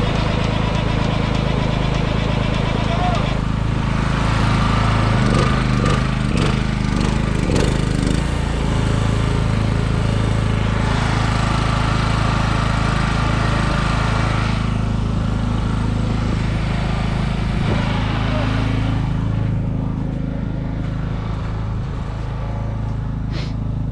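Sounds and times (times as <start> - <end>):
engine droning: 0.0 - 23.9.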